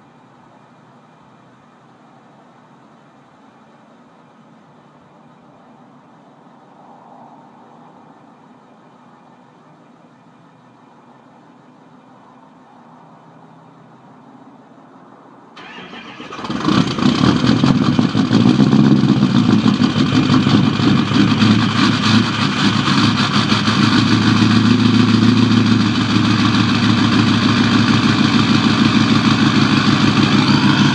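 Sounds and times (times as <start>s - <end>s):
diesel truck engine idling: 15.6s - 30.9s.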